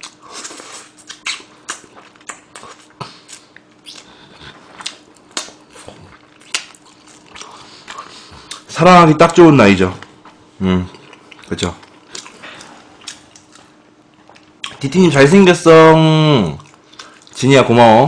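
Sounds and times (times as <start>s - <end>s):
chewing and lip-smacking: 0.0s - 8.7s, 10.9s - 14.8s, 16.6s - 17.4s.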